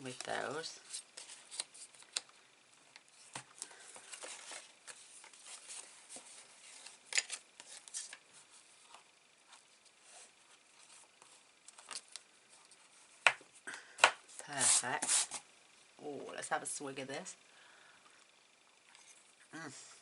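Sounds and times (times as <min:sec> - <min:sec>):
cardstock folding and rustling: 0:00.0 - 0:13.4.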